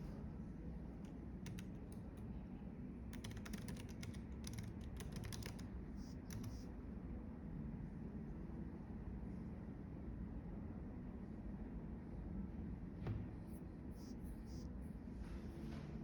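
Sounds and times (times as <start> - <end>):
typing on computer keyboard: 1.4 - 2.3, 3.1 - 6.6.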